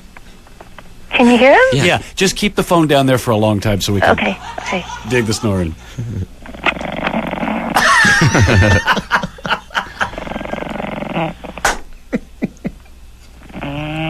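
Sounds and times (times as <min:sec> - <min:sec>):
puppy snoring over telephone: 0:06.1 - 0:07.8, 0:10.0 - 0:11.7, 0:13.4 - 0:14.0.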